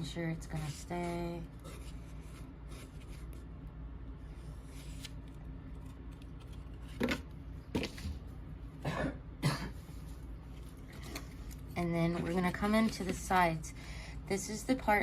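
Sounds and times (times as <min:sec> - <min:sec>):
woman coughing: 0:08.8 - 0:09.8.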